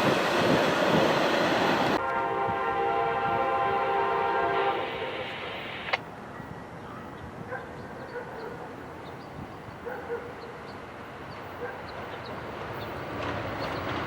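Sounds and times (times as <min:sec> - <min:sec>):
train rumble: 0:00.0 - 0:08.0, 0:08.7 - 0:14.0
locomotive air horn: 0:02.0 - 0:05.6.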